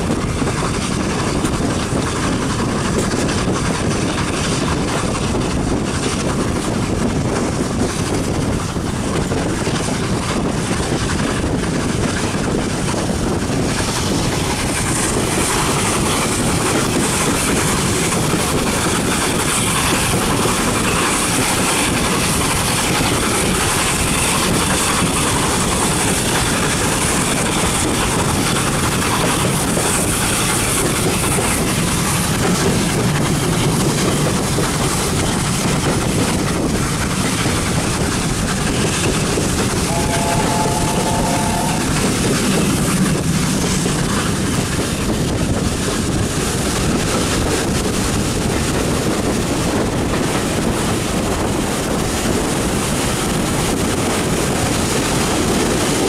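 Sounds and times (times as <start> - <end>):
train wheels rolling on rails: 0.0 - 56.0
short pitched tone: 39.9 - 42.6.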